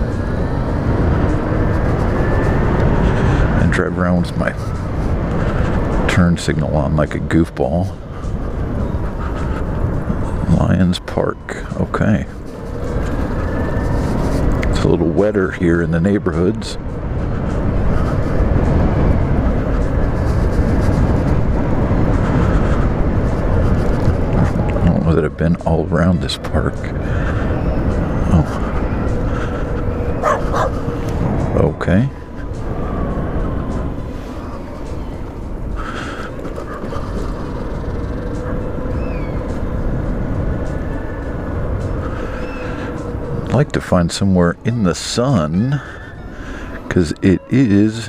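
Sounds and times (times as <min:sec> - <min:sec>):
tyre and road noise: 0:00.0 - 0:48.0
wind rush on microphone: 0:00.0 - 0:48.0
tyre noise: 0:30.2 - 0:30.9.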